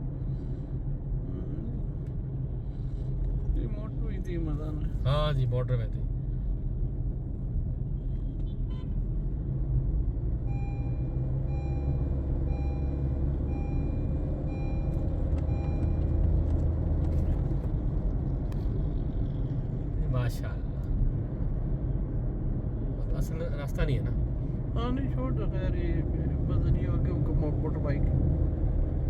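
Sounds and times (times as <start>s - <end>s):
car engine and road rumble: 0.0s - 29.0s
electronic beep: 10.5s - 16.1s.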